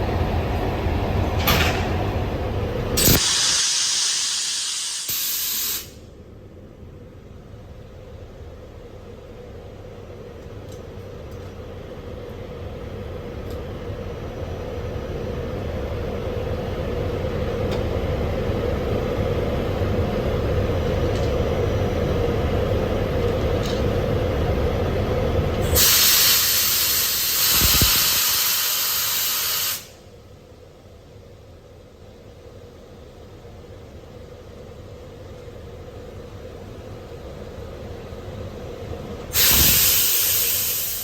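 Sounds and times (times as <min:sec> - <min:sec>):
train rumble: 0:00.0 - 0:03.2
air brake hiss: 0:03.0 - 0:06.1, 0:25.6 - 0:30.1, 0:39.3 - 0:41.0.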